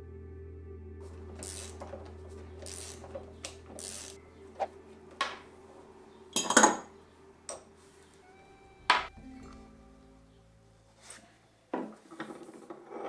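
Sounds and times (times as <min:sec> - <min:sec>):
metal parts scraping: 0:01.2 - 0:04.2
metallic clatter with ring: 0:06.4 - 0:06.8.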